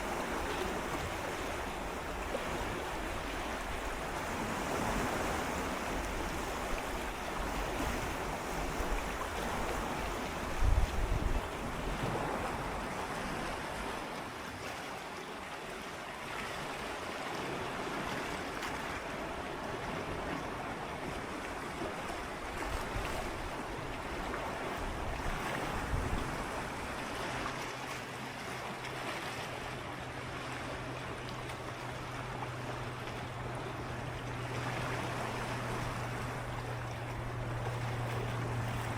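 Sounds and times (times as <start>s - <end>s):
waves lapping against rocks: 0.0s - 38.9s
low steady hum: 29.9s - 38.9s.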